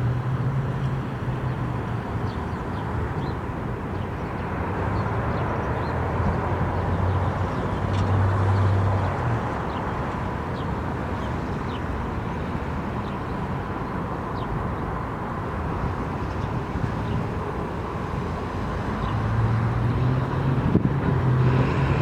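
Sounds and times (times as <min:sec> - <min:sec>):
outdoor traffic noise: 0:00.0 - 0:22.0
low engine hum: 0:17.9 - 0:22.0.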